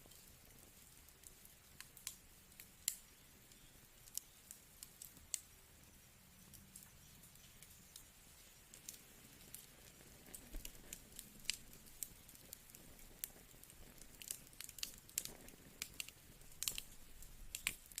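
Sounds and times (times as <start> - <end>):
faint low hiss: 0.0 - 18.0
fire crackling in a fireplace: 0.0 - 18.0.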